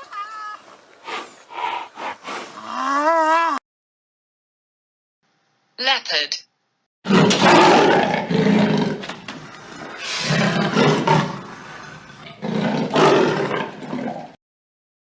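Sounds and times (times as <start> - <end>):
leopard roaring: 7.1 - 14.4.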